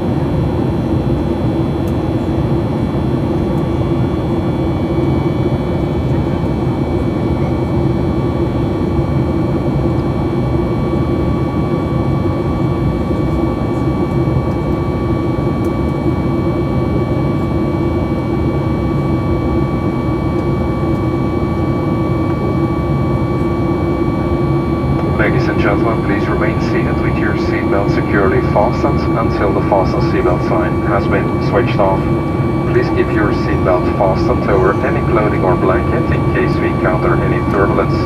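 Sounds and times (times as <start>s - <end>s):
jet engines: 0.0s - 38.0s
airplane cabin airflow rush: 19.7s - 38.0s
constant whining tones: 24.8s - 38.0s.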